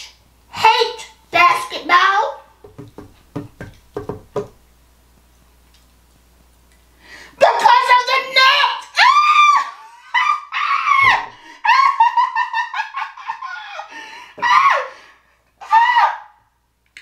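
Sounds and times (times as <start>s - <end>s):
person squealing and laughing: 9.0s - 14.9s.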